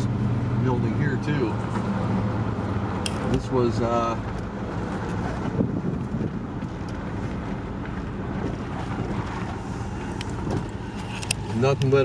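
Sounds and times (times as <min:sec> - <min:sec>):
vehicle rumble: 0:00.0 - 0:12.0
wind noise: 0:05.2 - 0:07.5.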